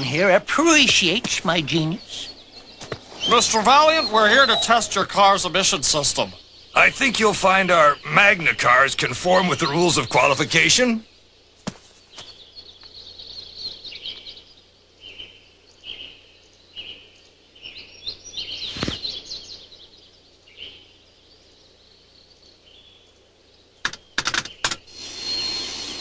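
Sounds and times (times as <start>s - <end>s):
birds chirping: 0.0s - 26.0s
sharp clicks: 23.8s - 24.8s.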